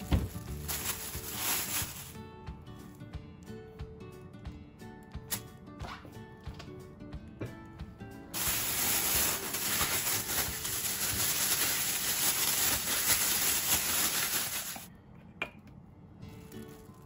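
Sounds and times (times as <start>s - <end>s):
plastic bag shaken crinkling: 0.0s - 2.2s, 8.4s - 14.9s
faint background music: 0.0s - 17.0s.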